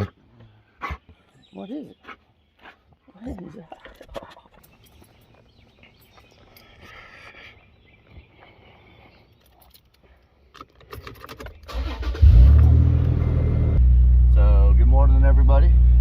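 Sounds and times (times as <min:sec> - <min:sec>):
car engine starting and idling: 0:11.3 - 0:16.0.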